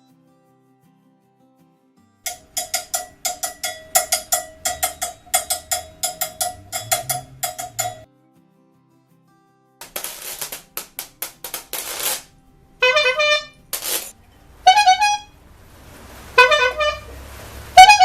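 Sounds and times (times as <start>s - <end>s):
horn honking in bending blasts: 2.3s - 8.0s, 11.6s - 13.7s, 14.3s - 18.0s.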